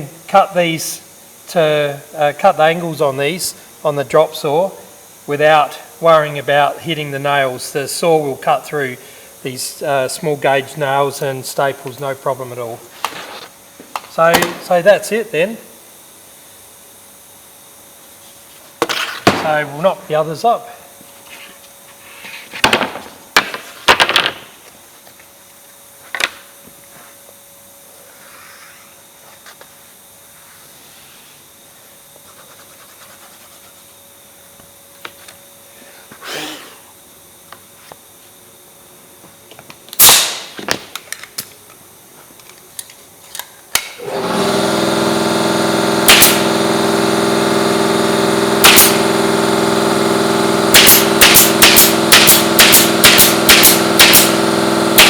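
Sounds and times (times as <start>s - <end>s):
pneumatic nailer firing: 40.0s - 40.9s, 43.7s - 55.0s
steady motor running: 44.0s - 55.0s.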